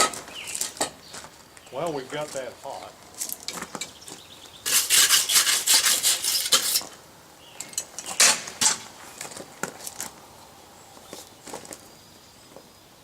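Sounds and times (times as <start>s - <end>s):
wire brush scraping steel: 4.6s - 7.0s.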